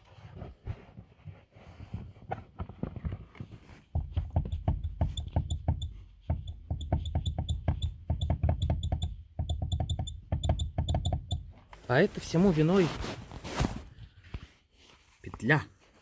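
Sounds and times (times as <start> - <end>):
rear knocking and clattering: 2.6 - 11.7.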